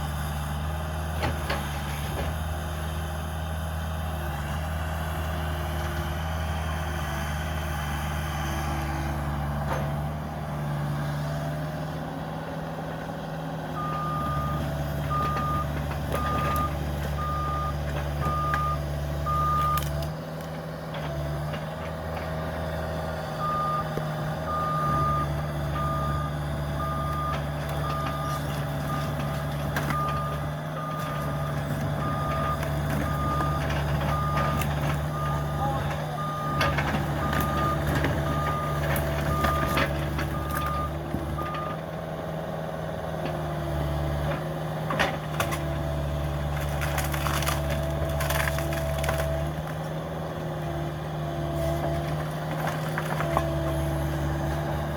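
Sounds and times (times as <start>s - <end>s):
excavator diesel engine running: 0.0s - 54.9s
reversing alarm beeping: 13.8s - 19.9s, 23.4s - 29.2s, 29.8s - 41.8s.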